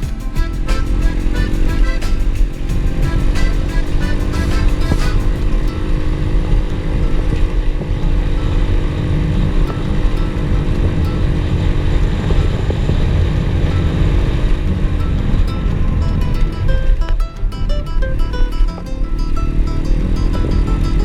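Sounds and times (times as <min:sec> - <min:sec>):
motorbike engine rumbling: 0:00.0 - 0:16.9.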